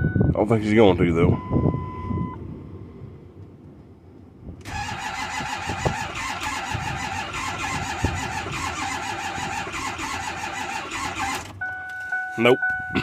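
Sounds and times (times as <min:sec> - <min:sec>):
diesel engine cranking on starter: 0:04.6 - 0:11.6.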